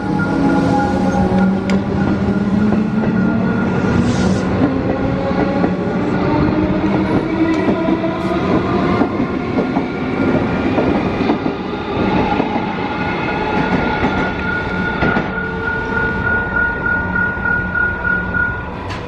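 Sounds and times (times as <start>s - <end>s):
train wheels clattering on rails: 6.7s - 19.0s.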